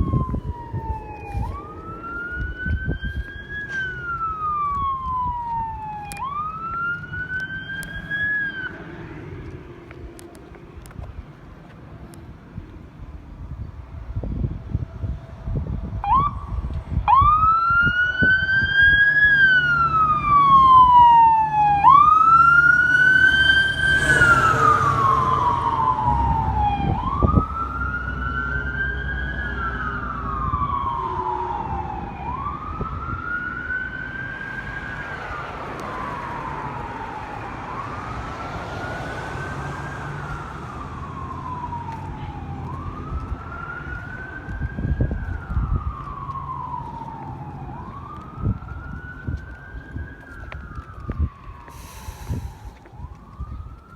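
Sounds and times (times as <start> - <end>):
electronic wail siren: 0.0 - 10.3, 14.4 - 53.9
low engine rumble: 39.2 - 53.9.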